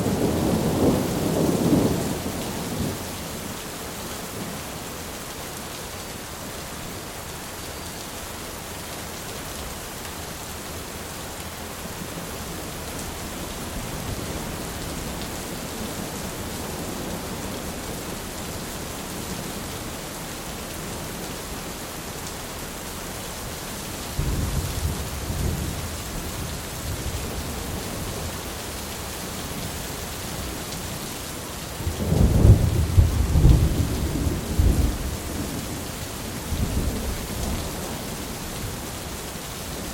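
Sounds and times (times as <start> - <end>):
steady rain: 0.0 - 39.9
thunder rumbling: 31.8 - 35.8.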